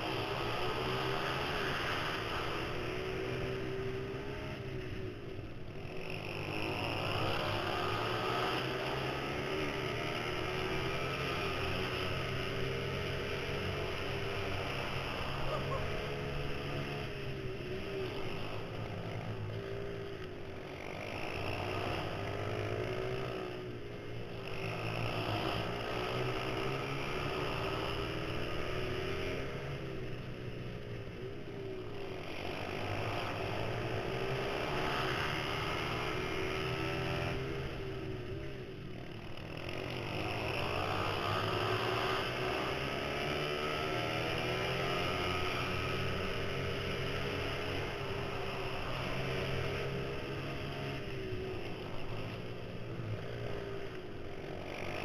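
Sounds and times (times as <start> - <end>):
motorbike engine revving: 5.8 - 23.6.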